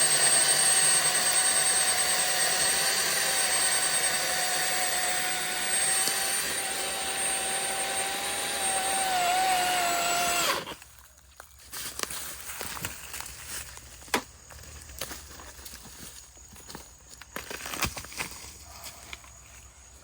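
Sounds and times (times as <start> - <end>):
battery chainsaw whining: 0.0 - 10.9.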